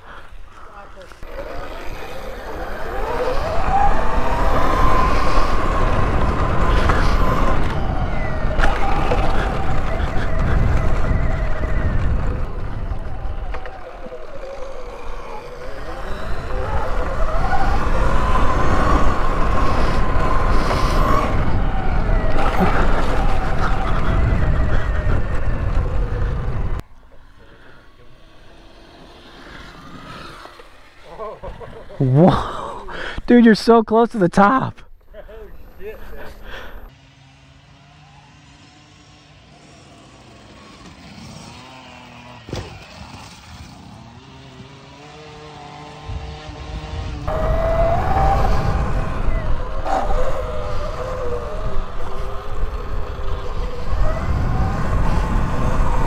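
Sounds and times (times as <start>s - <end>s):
electric motor whine: 0.1s - 31.0s, 35.3s - 56.0s
wind rumble on microphone: 1.8s - 26.8s, 45.9s - 56.0s.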